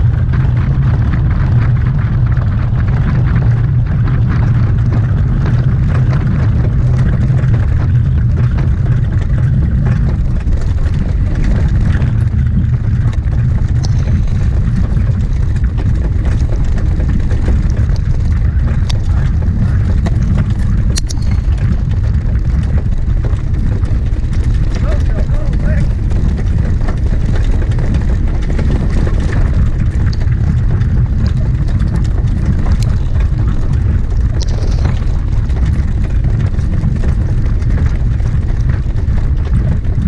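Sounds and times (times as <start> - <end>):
wind buffeting microphone: 0.0 - 40.0
faint clicks: 17.4 - 21.7.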